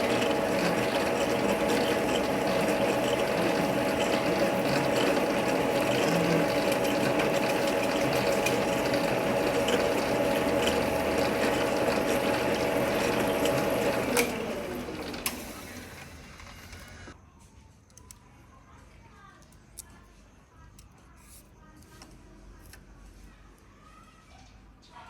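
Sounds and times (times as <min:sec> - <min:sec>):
metal lathe whining: 0:00.0 - 0:17.2.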